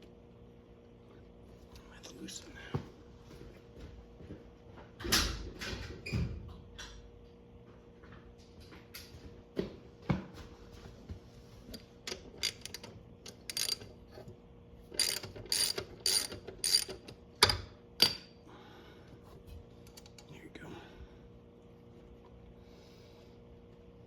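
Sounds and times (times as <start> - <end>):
ratchet wrench clicking: 12.1 - 13.9, 14.9 - 18.2.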